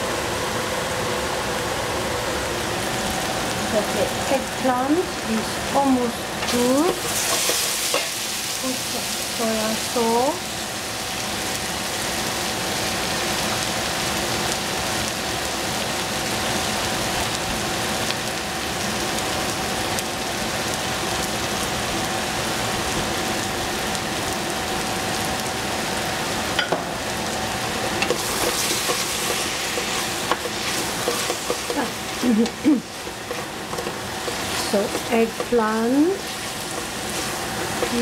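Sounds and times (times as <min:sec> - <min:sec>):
eggplant sizzling in a pan: 0:02.4 - 0:38.0
utensil clicking against pan: 0:28.0 - 0:31.8, 0:32.4 - 0:35.6.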